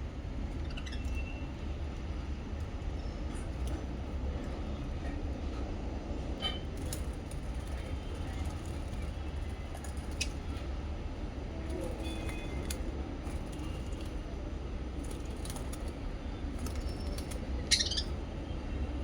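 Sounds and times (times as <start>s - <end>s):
small birds chirping and clicking: 0.5s - 1.4s, 6.8s - 10.8s, 11.7s - 14.2s, 15.0s - 18.2s
bird squawk: 16.9s - 18.2s.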